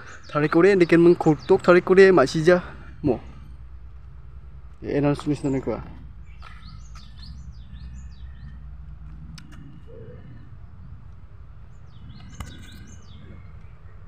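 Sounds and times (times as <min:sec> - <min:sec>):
bird singing whistled notes: 0:05.4 - 0:08.7, 0:11.7 - 0:14.0.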